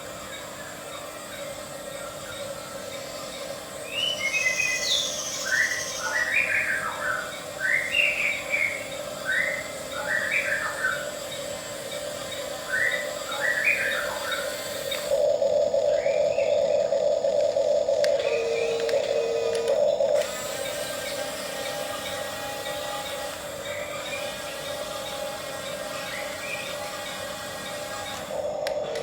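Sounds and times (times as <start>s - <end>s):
steady hum: 0.0s - 29.0s
bird chirping: 0.3s - 20.0s.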